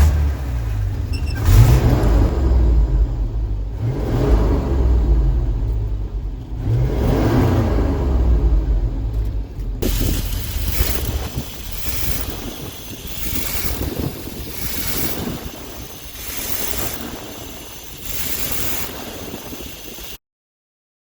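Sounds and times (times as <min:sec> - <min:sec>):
fire engine engine running: 0:00.0 - 0:20.2
rushing wind-like hiss: 0:09.8 - 0:20.2.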